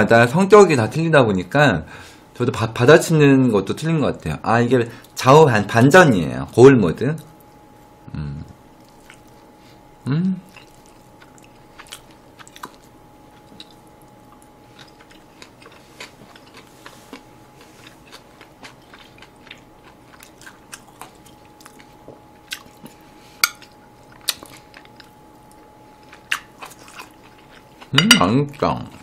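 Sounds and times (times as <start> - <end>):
close chewing and crunching: 8.8 - 9.5, 10.4 - 29.0
metal chopsticks tapping plate: 28.0 - 28.3.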